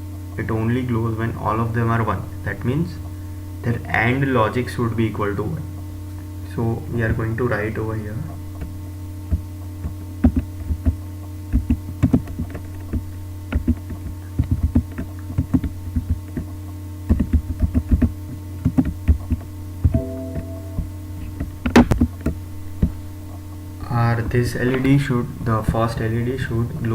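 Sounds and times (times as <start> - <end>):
steady electrical hum: 0.0 - 26.9
typing on a keyboard: 17.1 - 19.4.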